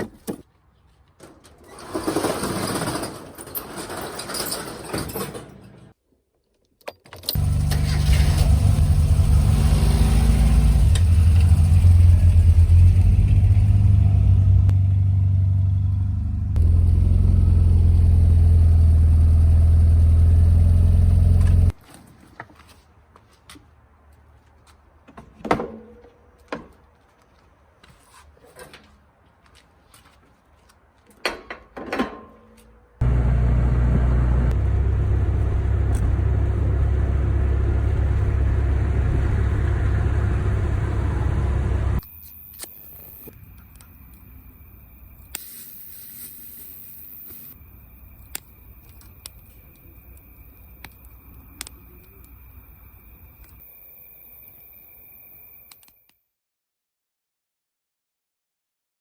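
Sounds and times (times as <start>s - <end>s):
faint scattered clicks: 48.2s - 52.6s
campfire crackling and popping: 48.3s - 52.4s.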